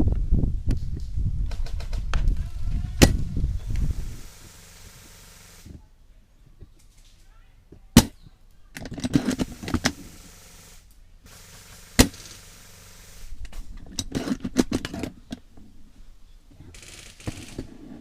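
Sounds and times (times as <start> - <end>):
airsoft guns firing: 4.0 - 5.7, 9.2 - 13.4, 16.7 - 17.6
sharp crack: 8.0 - 8.2, 8.8 - 14.8
short hiss: 9.3 - 13.6.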